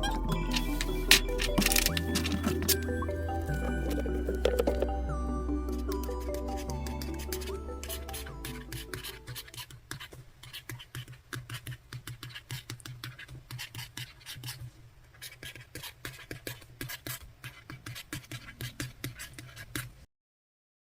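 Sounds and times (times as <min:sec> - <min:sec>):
hands tapping and scratching tablet: 0:00.4 - 0:05.0.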